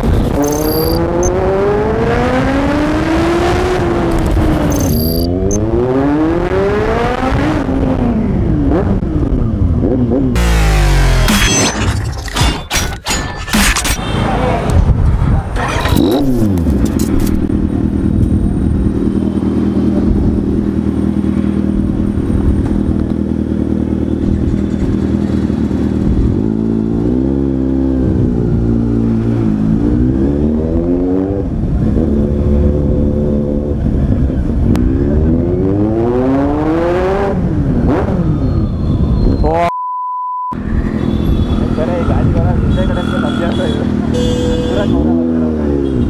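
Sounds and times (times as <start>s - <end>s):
motorcycle engine revving: 15.5s - 38.4s.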